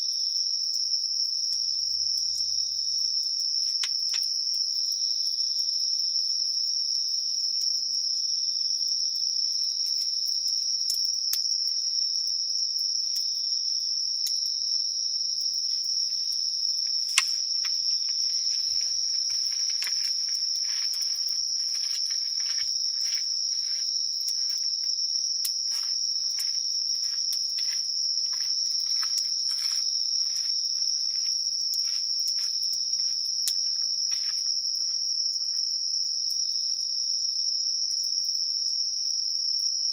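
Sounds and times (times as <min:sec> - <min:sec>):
insects trilling: 0:00.0 - 0:39.9
campfire crackling and popping: 0:03.7 - 0:04.4, 0:16.3 - 0:29.7.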